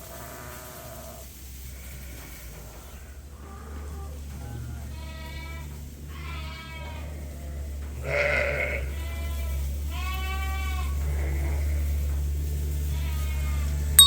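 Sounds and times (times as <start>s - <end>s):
sheep bleating: 3.4s - 12.1s, 12.9s - 13.8s.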